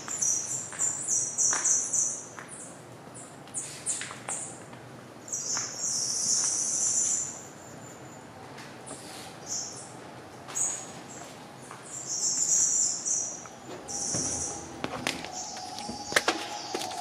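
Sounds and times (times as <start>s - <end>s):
small birds chirping: 5.3s - 8.3s, 9.0s - 17.0s.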